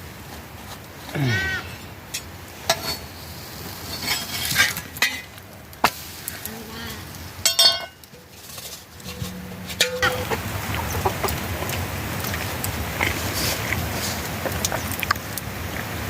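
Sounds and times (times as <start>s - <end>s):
utensils tapping and scraping pots: 2.1s - 6.0s, 7.4s - 11.8s
metal kitchenware clinking: 7.4s - 11.1s.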